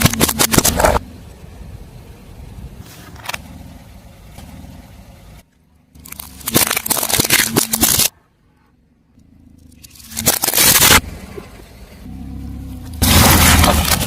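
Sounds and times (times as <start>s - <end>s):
tyre crushing brittle objects: 0.0s - 1.0s, 5.9s - 8.1s, 9.6s - 11.0s, 13.0s - 14.0s.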